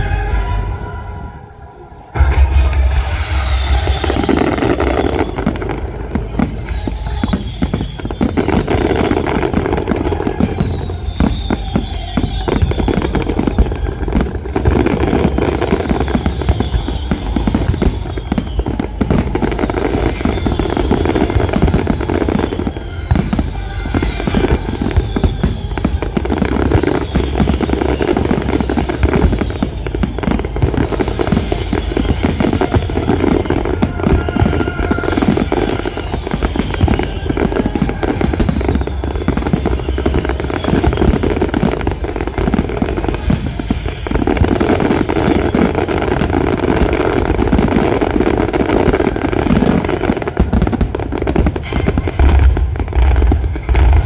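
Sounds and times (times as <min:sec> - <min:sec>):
firework whistles: 0:00.0 - 0:54.0
fireworks bangs and crackling: 0:00.0 - 0:54.0.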